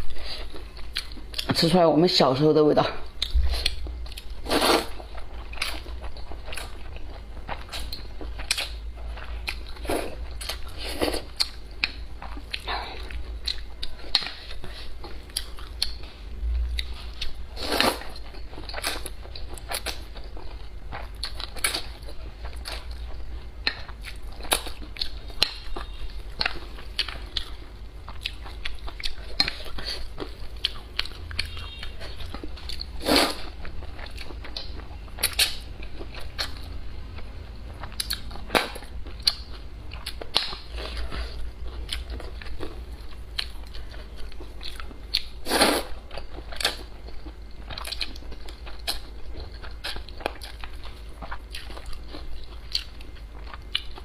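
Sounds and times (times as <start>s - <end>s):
chewing and mouth smacks: 5.1s - 16.1s, 37.7s - 45.4s, 46.1s - 54.0s.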